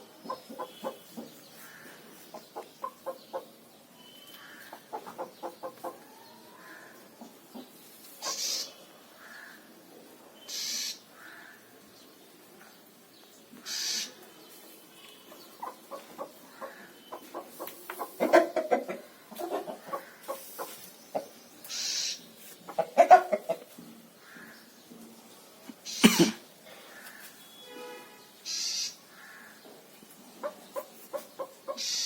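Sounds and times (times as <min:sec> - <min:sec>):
chickens clucking: 0:00.0 - 0:03.6, 0:04.6 - 0:08.8, 0:15.3 - 0:23.9, 0:29.6 - 0:32.0.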